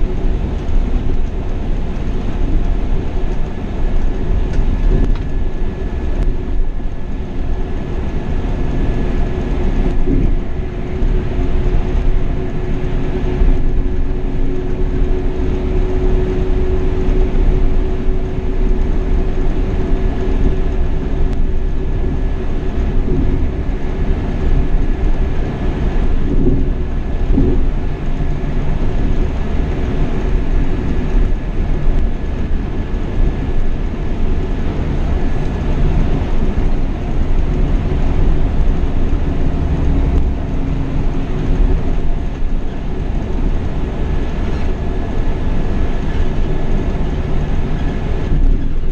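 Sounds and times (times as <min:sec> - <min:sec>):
bus road rumble and hum: 0:00.0 - 0:48.9.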